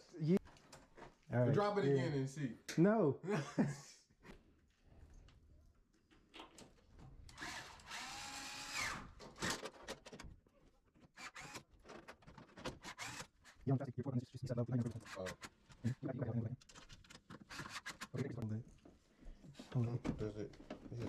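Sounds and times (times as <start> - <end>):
power drill running: 7.3 - 9.2, 11.2 - 11.6, 12.8 - 13.3.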